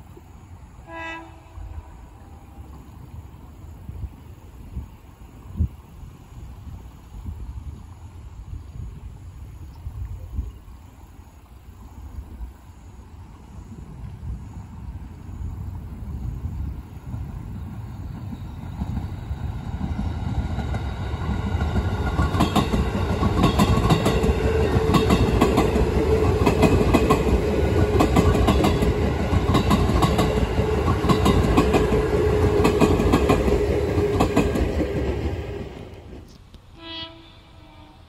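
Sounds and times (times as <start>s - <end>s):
low train rumble: 0.0s - 10.8s, 11.8s - 38.0s
train wheels clacking over rail joints: 18.1s - 36.4s.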